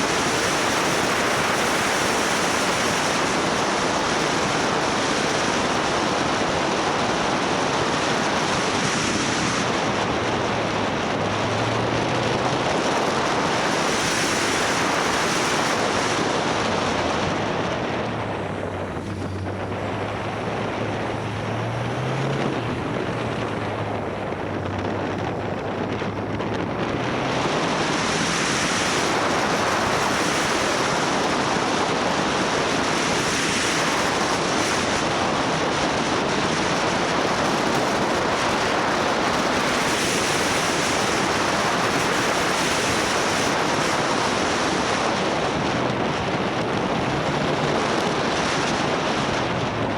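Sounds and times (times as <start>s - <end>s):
wind rushing over microphone: 0.0s - 49.9s
motorcycle engine: 9.5s - 33.2s.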